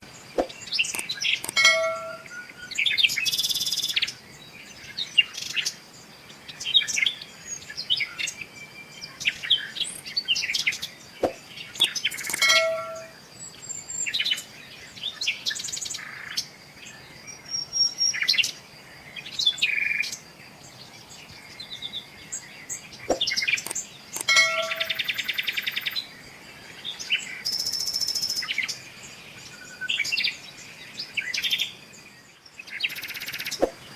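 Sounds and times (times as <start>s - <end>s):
bird trills: 0.0s - 4.1s, 9.3s - 14.2s, 22.7s - 26.1s
birds singing and chirping: 0.0s - 33.9s.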